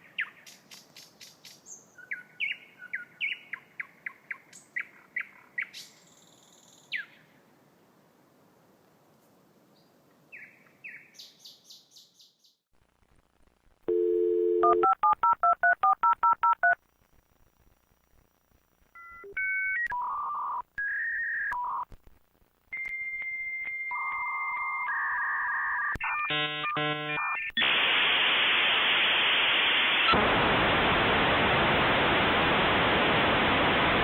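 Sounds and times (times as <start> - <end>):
dial tone: 13.9 - 16.8
touch-tone dialing beeps: 13.9 - 16.8.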